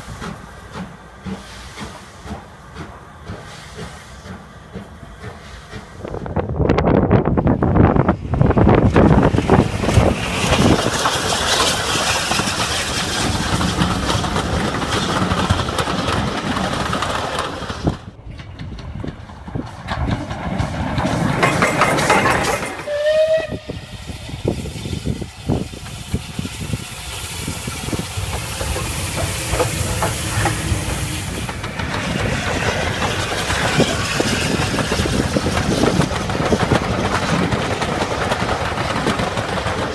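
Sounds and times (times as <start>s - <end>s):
steam locomotive hissing: 0.0s - 18.2s, 19.0s - 39.9s
train noise: 0.0s - 39.9s
rising train whistle: 22.7s - 24.0s.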